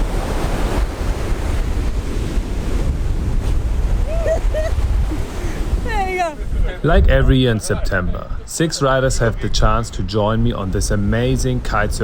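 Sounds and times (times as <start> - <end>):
ocean surf: 0.0 - 9.5
wind buffeting microphone: 0.0 - 12.0.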